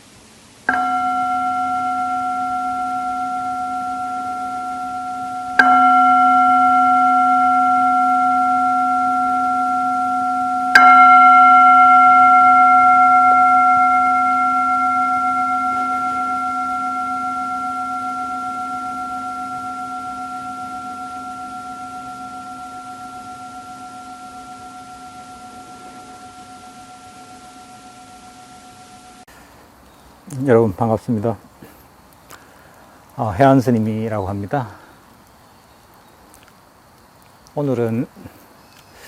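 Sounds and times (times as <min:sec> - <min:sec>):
singing bowl ringing: 0:00.7 - 0:29.3.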